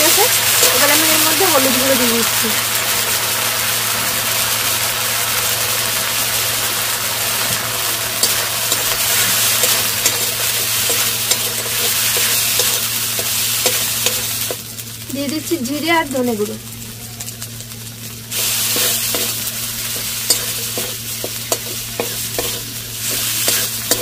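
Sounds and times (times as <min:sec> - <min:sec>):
spice paste sizzling: 0:00.0 - 0:24.0
metal spatula scraping pan: 0:18.4 - 0:24.0.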